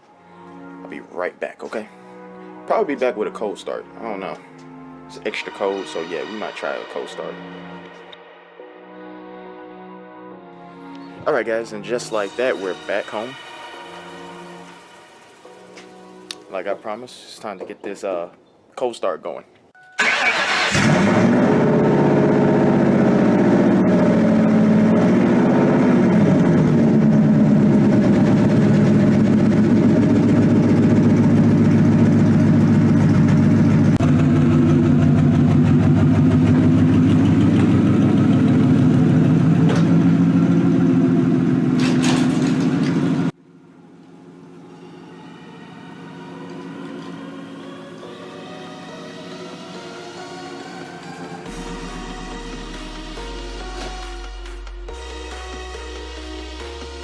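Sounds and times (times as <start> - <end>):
quiet music: 0.0 - 20.7, 43.3 - 57.0
loud car engine idling: 20.9 - 43.3.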